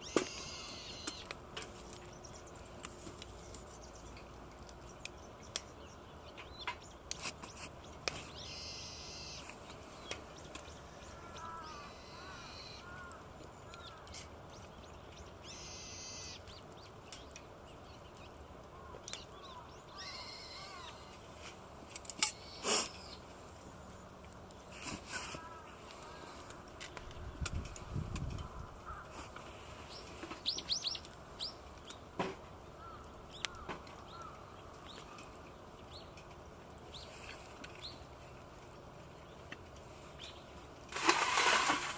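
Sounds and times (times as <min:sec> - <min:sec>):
harsh drawn-out bird calls: 0:00.0 - 0:02.6, 0:04.8 - 0:21.2, 0:22.3 - 0:24.2, 0:28.3 - 0:32.1, 0:32.7 - 0:36.1
birds chirping: 0:00.0 - 0:21.3, 0:22.2 - 0:24.4, 0:28.2 - 0:40.6.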